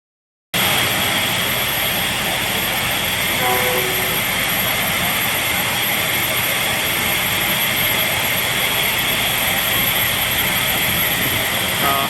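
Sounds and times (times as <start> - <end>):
faint tone: 3.4 - 4.6.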